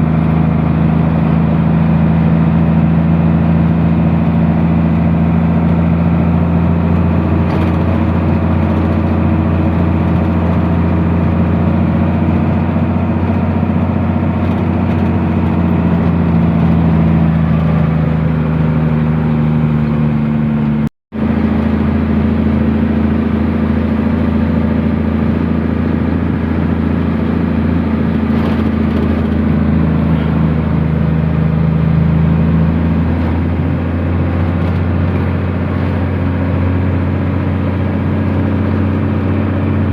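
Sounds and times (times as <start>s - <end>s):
truck engine droning: 0.0s - 39.9s.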